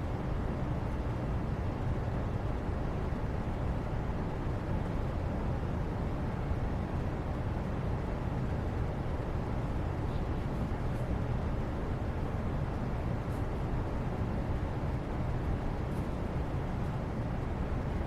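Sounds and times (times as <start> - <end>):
low steady background noise: 0.0 - 18.0.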